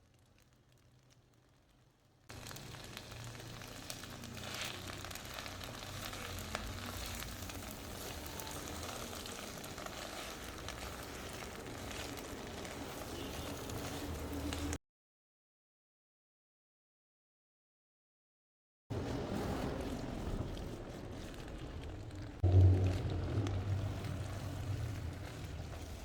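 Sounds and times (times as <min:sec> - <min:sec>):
food sizzling in a frying pan: 0:00.0 - 0:14.8.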